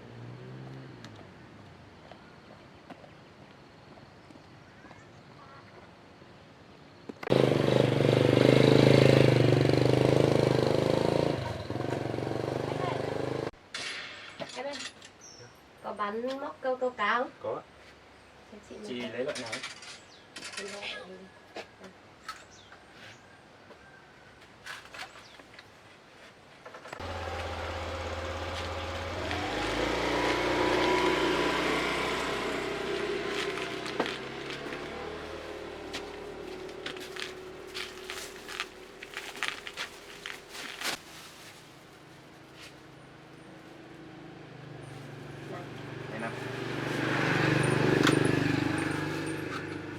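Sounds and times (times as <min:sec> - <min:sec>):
small motorbike engine running: 0:07.2 - 0:13.5, 0:27.0 - 0:40.9, 0:44.7 - 0:49.9.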